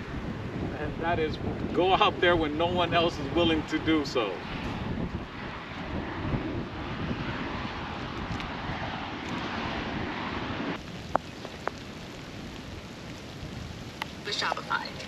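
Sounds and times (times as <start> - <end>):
wind rushing over microphone: 0.0 - 15.0
light rain: 7.6 - 15.0.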